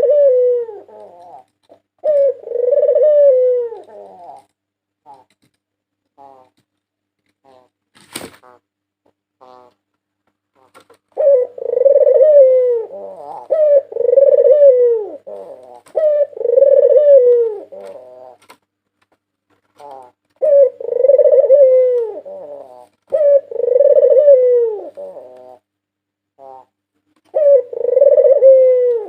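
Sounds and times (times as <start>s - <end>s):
dove cooing: 0.0s - 4.5s, 10.6s - 18.6s, 19.8s - 25.7s, 26.4s - 29.0s.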